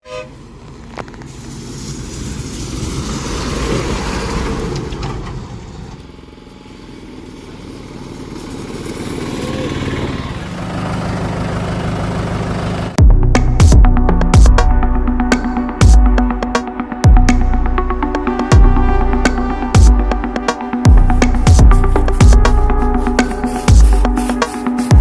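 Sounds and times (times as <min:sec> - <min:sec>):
vehicles passing on road: 0:00.0 - 0:13.0.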